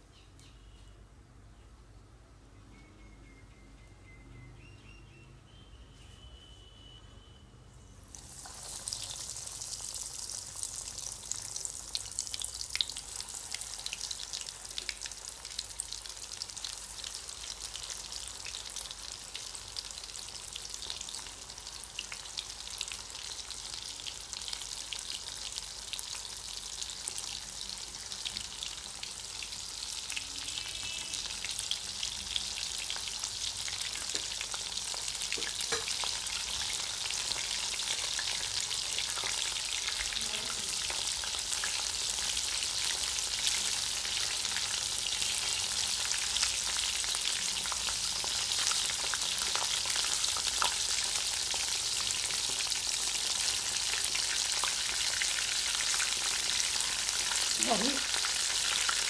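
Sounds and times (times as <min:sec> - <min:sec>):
fish fingers sizzling in hot oil: 0:08.1 - 0:40.0.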